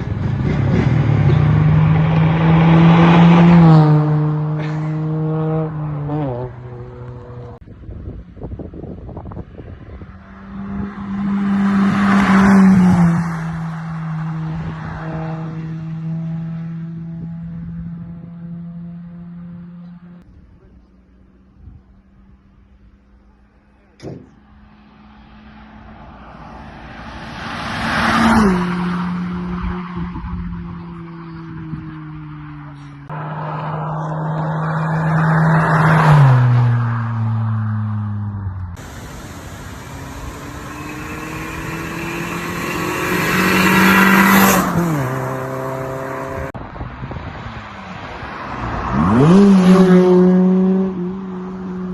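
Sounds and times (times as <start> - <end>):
car engine passing by: 0.0 - 7.6, 9.2 - 20.2, 24.2 - 51.9
car driving past: 24.3 - 46.6.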